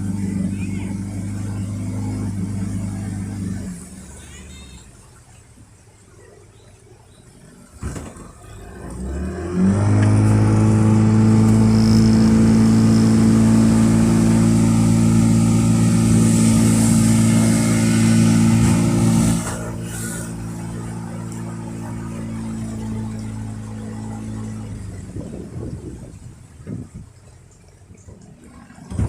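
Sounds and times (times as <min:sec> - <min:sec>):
boat engine running: 0:00.0 - 0:29.0.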